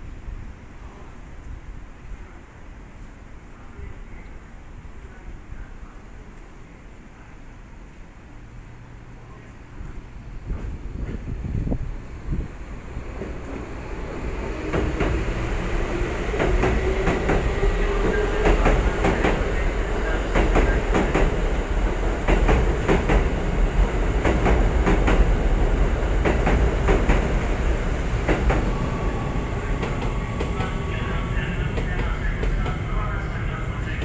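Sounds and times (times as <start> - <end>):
train wheels clacking on rails: 13.0 - 33.0.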